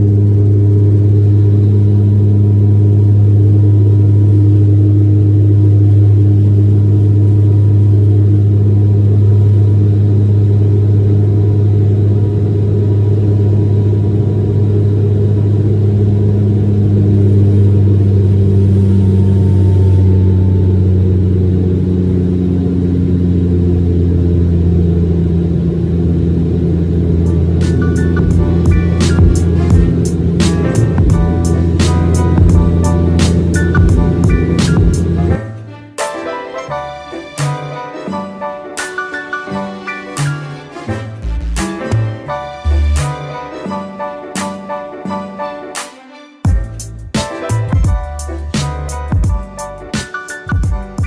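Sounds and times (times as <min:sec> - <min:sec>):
turboprop engines droning: 0:00.0 - 0:35.8, 0:46.5 - 0:51.0.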